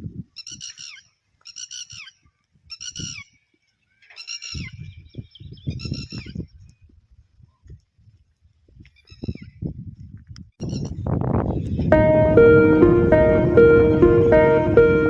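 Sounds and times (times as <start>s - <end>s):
low rumbling noise: 11.9s - 15.0s.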